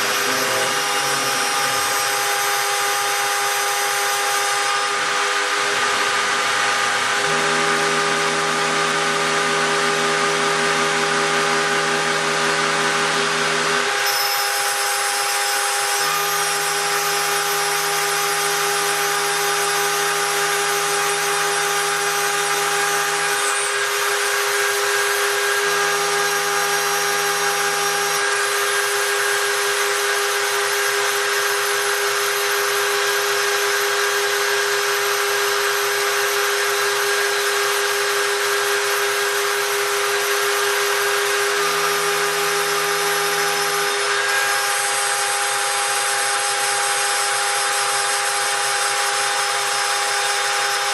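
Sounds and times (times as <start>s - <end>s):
router spindle whining: 0.0s - 50.9s
low machine hum: 5.8s - 13.9s.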